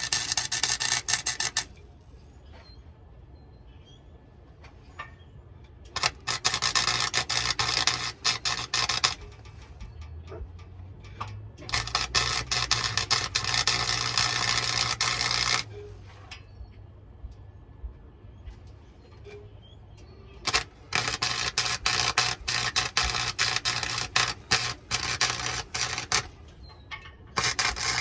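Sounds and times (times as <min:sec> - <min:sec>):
welding arc crackling: 0:00.0 - 0:01.7, 0:05.9 - 0:09.6, 0:11.6 - 0:15.7, 0:20.4 - 0:26.4, 0:27.4 - 0:28.0.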